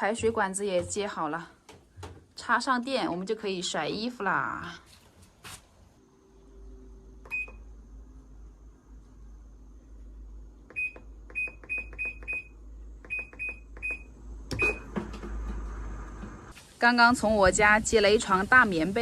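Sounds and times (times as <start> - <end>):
washing machine beeps: 7.2 - 7.7, 10.7 - 15.0.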